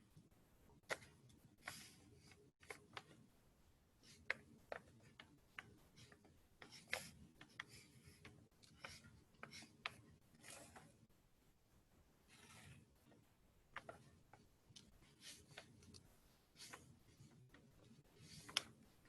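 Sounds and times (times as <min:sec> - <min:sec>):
brush strokes on paper: 0:08.8 - 0:11.0.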